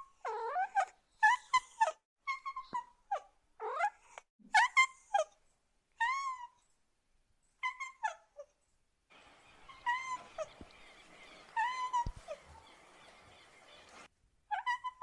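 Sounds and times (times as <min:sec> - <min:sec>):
faint steady hiss: 0:09.1 - 0:14.1
cat meowing: 0:09.7 - 0:10.5.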